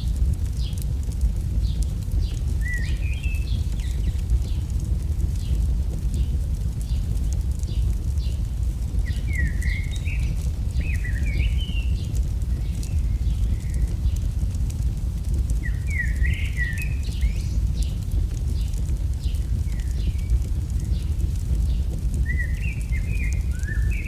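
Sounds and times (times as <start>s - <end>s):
fire crackling and popping: 0.0s - 24.0s
low rumble: 0.0s - 24.0s
bird singing warbling phrases: 9.0s - 14.2s, 15.6s - 17.9s, 22.2s - 24.0s.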